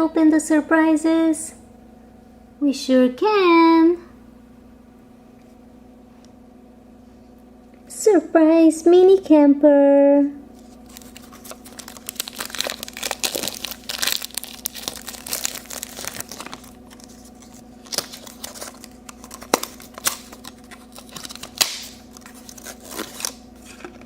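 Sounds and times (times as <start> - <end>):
plastic wrapping crinkling and tearing: 10.5 - 24.0.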